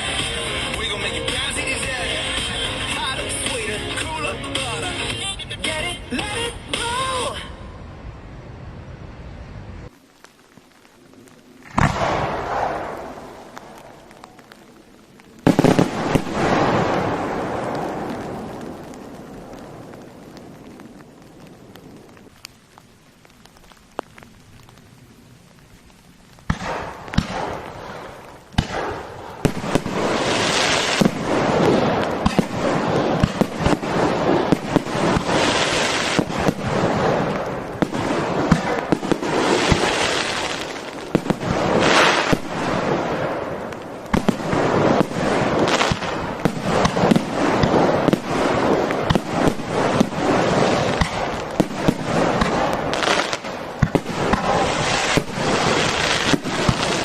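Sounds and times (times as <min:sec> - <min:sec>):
fireworks bangs and crackles: 0:00.0 - 0:07.4, 0:10.0 - 0:57.0.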